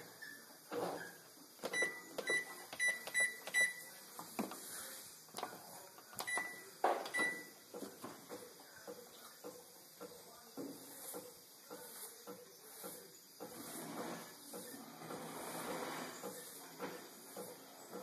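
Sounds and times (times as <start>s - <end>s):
washing machine panel beeps: 1.7s - 3.9s, 6.2s - 7.5s.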